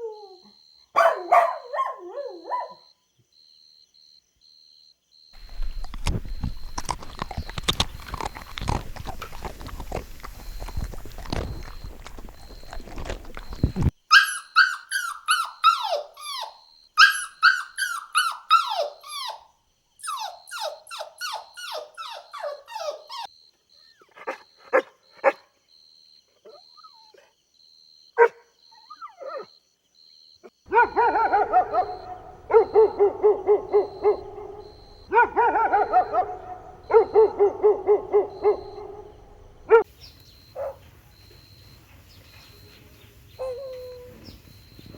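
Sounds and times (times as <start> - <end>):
dog yelping: 1.0 - 2.8, 5.4 - 23.3, 30.7 - 39.9, 43.4 - 44.2
dog yipping: 1.0 - 2.8, 5.4 - 23.3, 30.7 - 39.9, 40.6 - 40.8, 43.4 - 44.2
lower dog calls: 5.4 - 19.4, 30.7 - 39.9.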